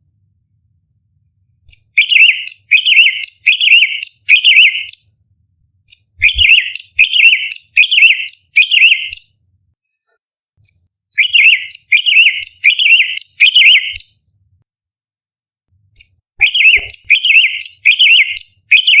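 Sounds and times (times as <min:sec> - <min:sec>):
bird singing whistled phrases: 0:01.7 - 0:05.2, 0:05.9 - 0:09.5, 0:10.7 - 0:14.4, 0:16.0 - 0:19.0.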